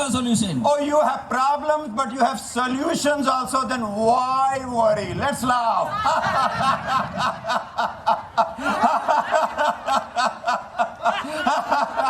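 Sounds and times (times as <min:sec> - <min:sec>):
rhythmic ha-ha laughter: 0:05.9 - 0:12.0.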